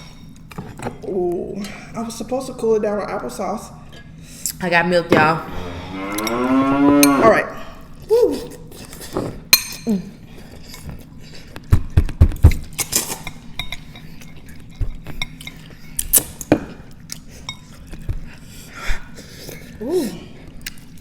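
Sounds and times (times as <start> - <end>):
utensils clinking against dishes: 12.7 - 18.0.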